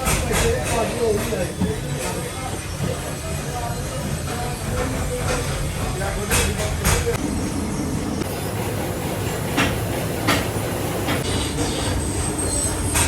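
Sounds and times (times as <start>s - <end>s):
workshop machinery rumbling: 0.0s - 13.0s.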